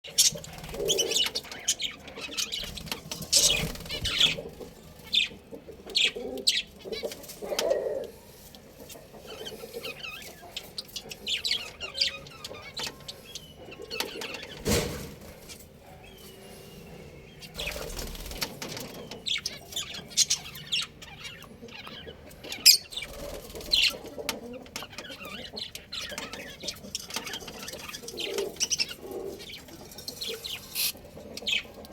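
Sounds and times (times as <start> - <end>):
birds chirping: 0.0 - 31.9
low cooing: 7.0 - 8.3.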